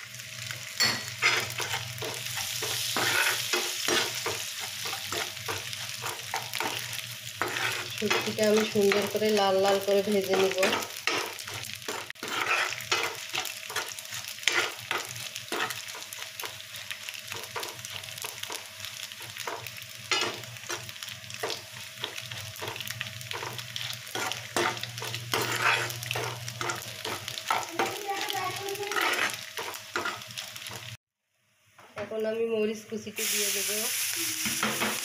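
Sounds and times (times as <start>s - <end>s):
fish frying in hot oil: 0.0s - 31.0s, 33.0s - 35.0s
metal spatula scraping pan: 0.8s - 9.2s, 10.2s - 16.0s, 22.6s - 28.0s, 28.7s - 30.2s.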